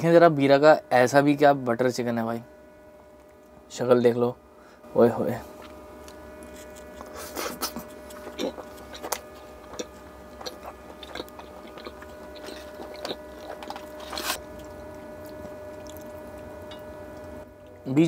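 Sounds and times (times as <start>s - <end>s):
faint steady hum: 0.0s - 18.0s
man chewing wetly: 5.6s - 17.7s.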